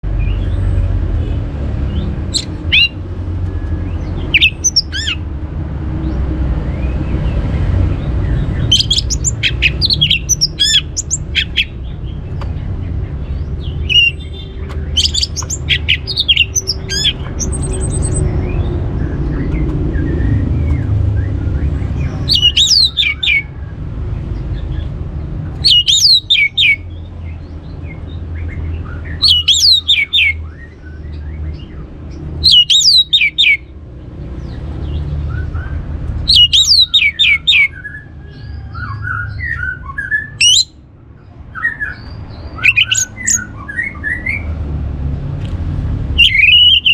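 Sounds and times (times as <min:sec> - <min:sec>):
thrush singing: 0:02.0 - 0:03.1, 0:04.0 - 0:05.3, 0:08.0 - 0:12.1, 0:13.6 - 0:18.9, 0:22.0 - 0:23.5, 0:25.6 - 0:26.8, 0:42.5 - 0:44.4, 0:46.2 - 0:46.9.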